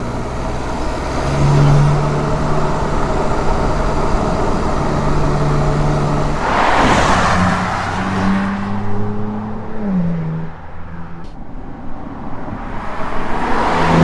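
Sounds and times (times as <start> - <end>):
car engine running: 0.0 - 14.0
rush of noise: 6.3 - 9.8, 10.7 - 14.0.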